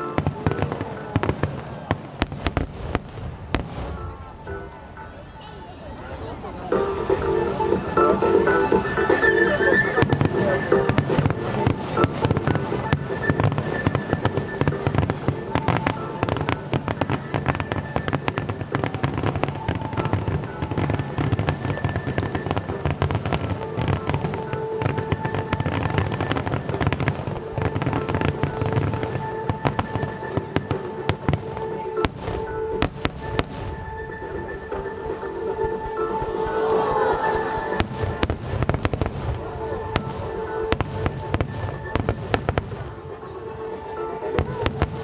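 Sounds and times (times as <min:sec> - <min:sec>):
fireworks bursting and popping: 0:00.0 - 0:04.5, 0:37.7 - 0:43.0
music with held tones: 0:03.0 - 0:45.0.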